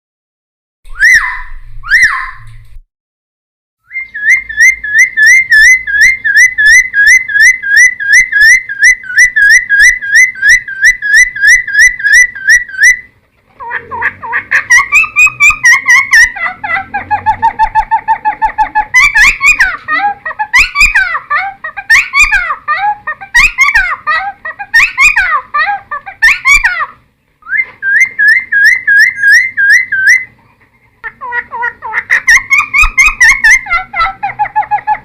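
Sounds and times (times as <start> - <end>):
bird singing repeated notes: 0.8 - 2.6, 3.8 - 13.1, 13.8 - 21.2, 26.1 - 30.4, 31.5 - 35.0.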